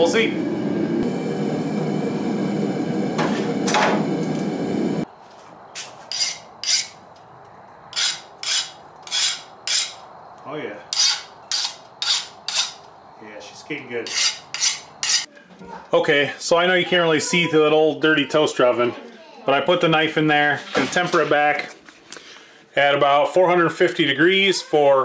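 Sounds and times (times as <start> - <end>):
forge burner roaring: 0.0 - 5.1
file rasping on steel blade: 6.1 - 7.0, 7.9 - 10.0, 10.9 - 12.8, 14.0 - 15.3.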